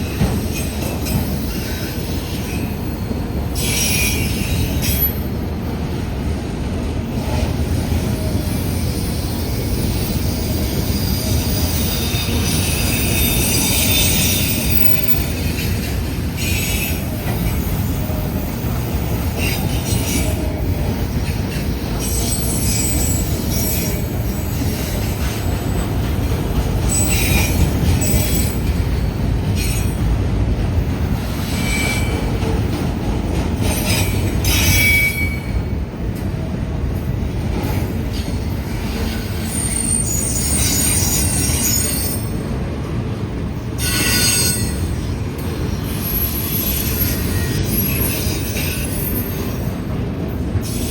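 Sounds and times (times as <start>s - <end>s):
train wheels rumbling on rails: 0.0s - 50.9s
wheel squeals: 8.7s - 20.4s, 21.2s - 25.6s, 26.8s - 28.8s, 31.4s - 32.4s, 33.6s - 35.8s, 39.1s - 42.5s, 43.8s - 49.7s.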